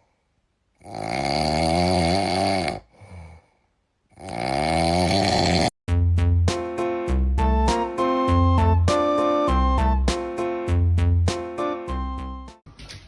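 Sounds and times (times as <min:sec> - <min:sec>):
pet snoring: 0:00.8 - 0:02.9, 0:04.1 - 0:05.8
music: 0:05.9 - 0:12.7.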